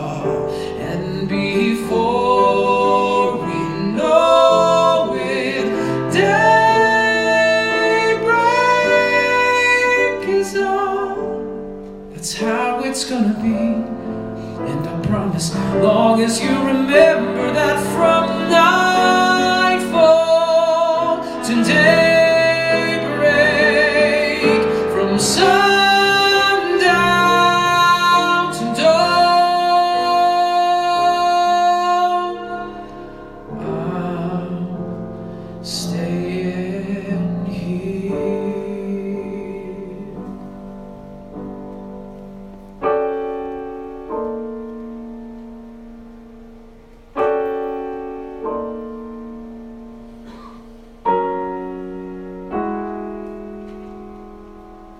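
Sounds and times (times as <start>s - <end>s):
man singing with vibrato: 0.0s - 40.6s
piano chords: 0.0s - 54.9s.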